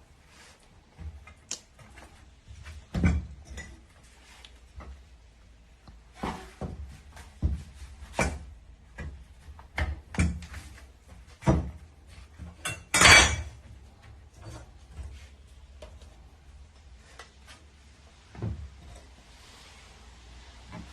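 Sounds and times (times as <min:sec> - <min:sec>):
dog bed frame parts clattering: 0:01.0 - 0:04.2, 0:06.2 - 0:15.2.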